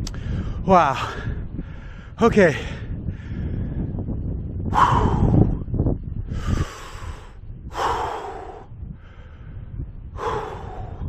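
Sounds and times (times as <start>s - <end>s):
man breathing hard: 0.1s - 4.0s, 4.7s - 11.0s.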